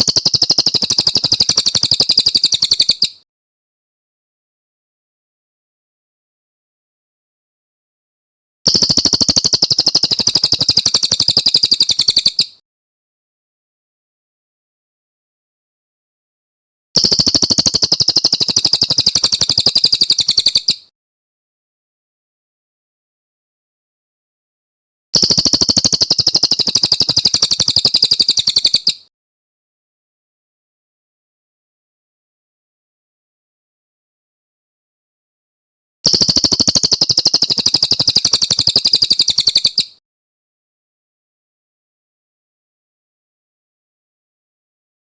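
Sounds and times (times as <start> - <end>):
songbird rolling trill: 0.0 - 3.1, 8.7 - 12.5, 17.0 - 20.8, 25.2 - 29.0, 36.1 - 39.9.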